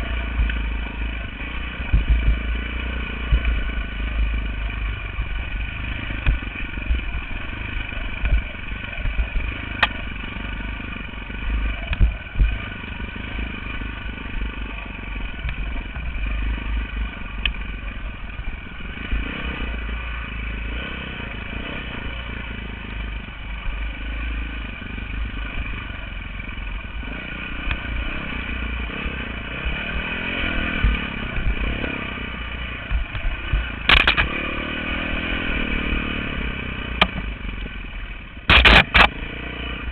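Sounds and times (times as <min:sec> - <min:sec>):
dirt bike engine rumbling: 0:00.0 - 0:39.9
sharp knocks and clatter: 0:32.9 - 0:34.4, 0:37.0 - 0:37.3, 0:38.5 - 0:39.1.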